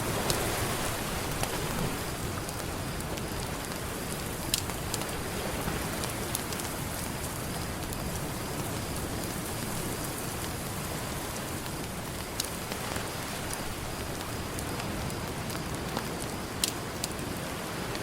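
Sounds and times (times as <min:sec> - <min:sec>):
ocean surf: 0:00.0 - 0:04.2
campfire crackling: 0:00.0 - 0:18.0.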